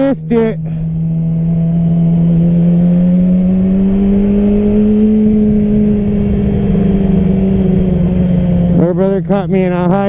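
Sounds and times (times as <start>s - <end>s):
wind rumble: 0.0s - 10.0s.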